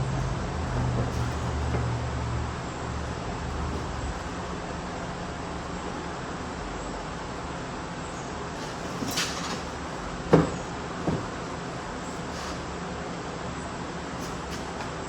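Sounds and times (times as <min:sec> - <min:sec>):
steady background hum: 0:00.0 - 0:15.0
knocks: 0:10.3 - 0:11.4.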